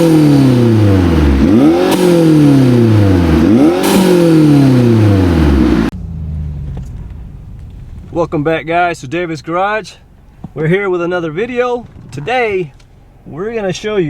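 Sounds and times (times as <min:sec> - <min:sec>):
low engine drone: 0:00.0 - 0:08.7
car engine revving: 0:00.0 - 0:10.6.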